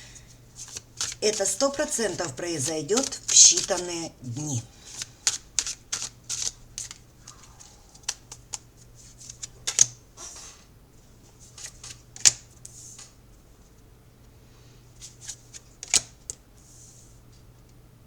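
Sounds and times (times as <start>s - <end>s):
cards rustling: 0.3s - 10.0s
card stock snapping: 0.6s - 8.6s.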